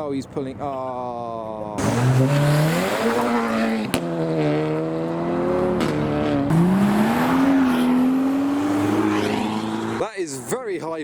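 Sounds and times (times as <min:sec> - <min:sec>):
car engine accelerating hard: 0:01.8 - 0:10.1.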